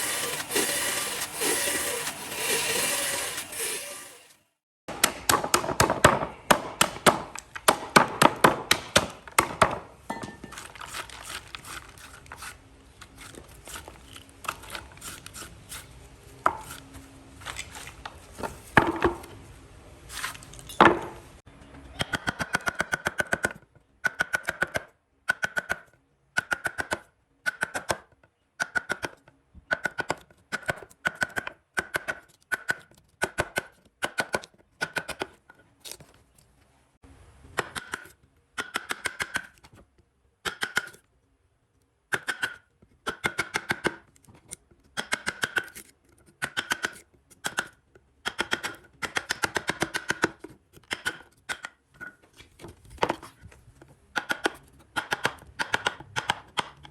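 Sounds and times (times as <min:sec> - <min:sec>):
hand tool clicking on wood: 0:42.1 - 0:51.8, 0:54.2 - 0:56.9.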